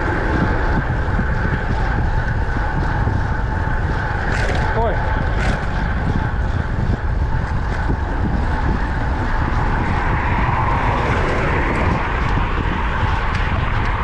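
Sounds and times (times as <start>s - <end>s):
road traffic noise: 0.0s - 14.0s
vehicle passing: 0.0s - 14.0s
wind buffeting microphone: 0.0s - 14.0s.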